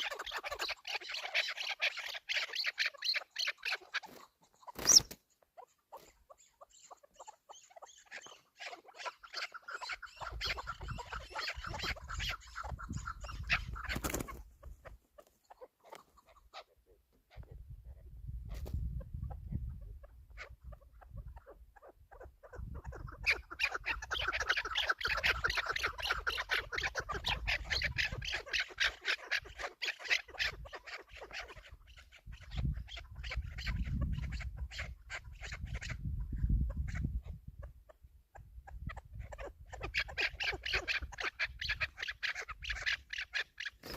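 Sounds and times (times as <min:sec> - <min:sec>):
partridge rapid clucking: 0:09.0 - 0:16.6.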